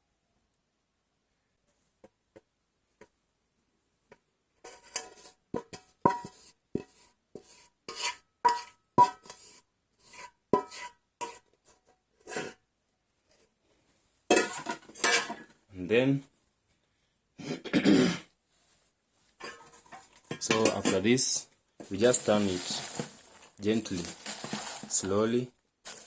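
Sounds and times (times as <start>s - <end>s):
utensil scraping metal pot: 4.6s - 12.6s, 14.3s - 15.5s, 19.4s - 25.3s.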